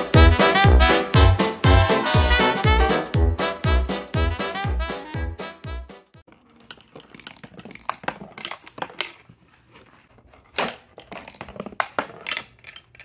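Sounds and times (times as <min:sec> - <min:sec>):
marble rolling through cardboard run: 0:06.3 - 0:13.0.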